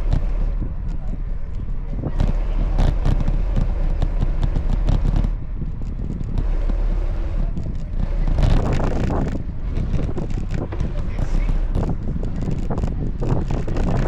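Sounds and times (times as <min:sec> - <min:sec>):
crackling clicks and rattles: 0:00.0 - 0:14.0
road rumble: 0:00.0 - 0:14.0
wind on microphone: 0:00.0 - 0:14.0.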